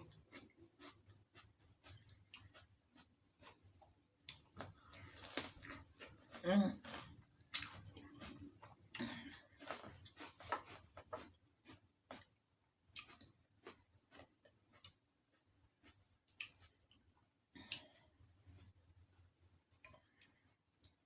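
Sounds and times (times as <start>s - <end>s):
chewing clicks and smacks: 0.0s - 4.7s, 12.9s - 17.0s, 19.8s - 21.0s.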